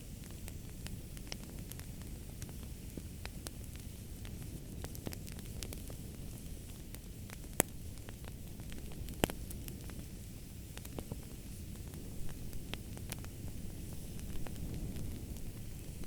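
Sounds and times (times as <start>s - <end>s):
fire sharp pops: 0.0s - 16.0s
low rumble and hiss: 0.0s - 16.0s
wood fire crackling: 0.0s - 16.0s.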